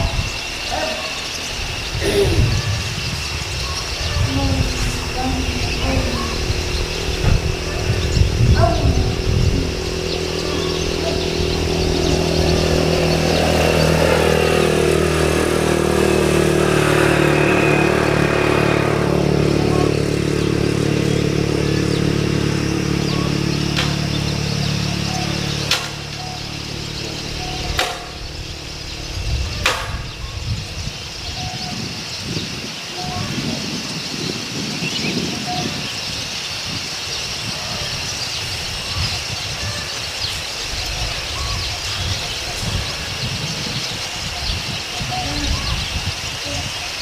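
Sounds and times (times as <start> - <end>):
vehicle engine running: 0.0 - 31.9
sharp clicks: 23.8 - 24.1, 25.6 - 26.2.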